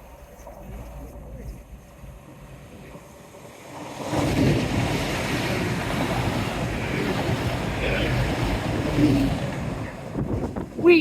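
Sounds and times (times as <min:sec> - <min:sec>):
waves surging against seawall: 0:01.8 - 0:11.0
wind buffeting microphone: 0:03.8 - 0:11.0.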